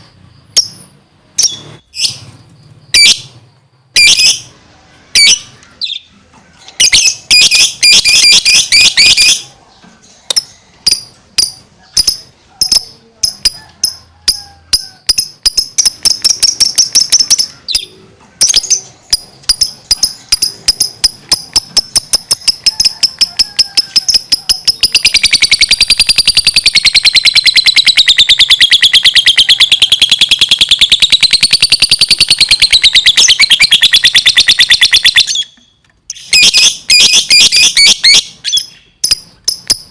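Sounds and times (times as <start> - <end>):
lovebird chirping and trilling: 0.4 - 4.5, 5.1 - 39.9.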